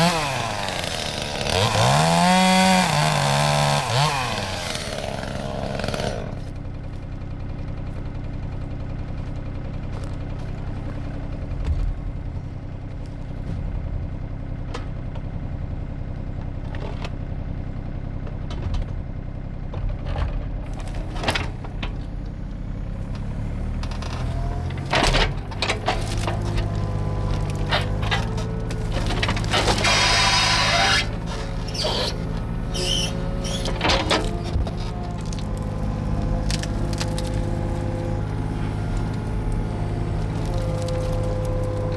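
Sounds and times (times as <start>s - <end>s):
brush and wood snapping: 0.0s - 6.6s, 23.8s - 41.9s
excavator diesel engine running: 0.0s - 41.9s.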